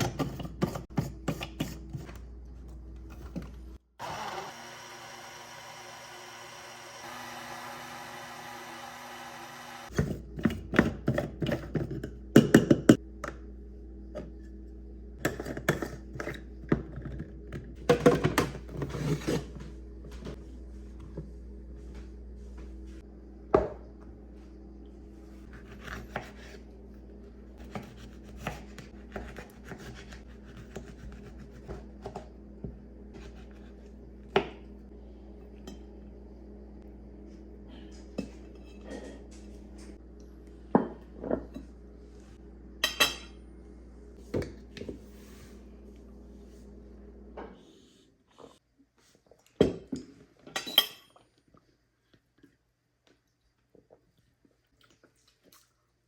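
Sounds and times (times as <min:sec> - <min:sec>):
steady low hum: 0:09.9 - 0:48.6
dishes and utensils clinking: 0:50.5 - 0:51.2.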